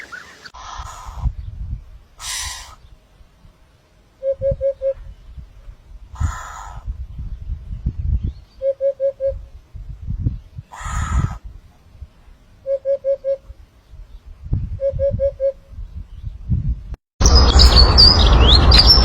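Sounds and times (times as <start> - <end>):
bird harsh hissing call: 0.0 - 1.4, 2.2 - 3.0, 6.2 - 6.9, 10.7 - 11.4.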